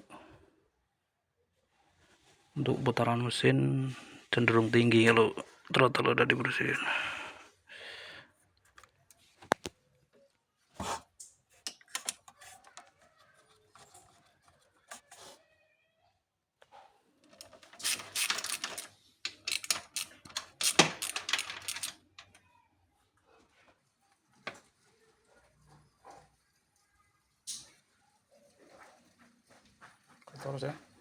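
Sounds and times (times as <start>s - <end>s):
hand tools clicking and knocking: 17.2s - 22.4s.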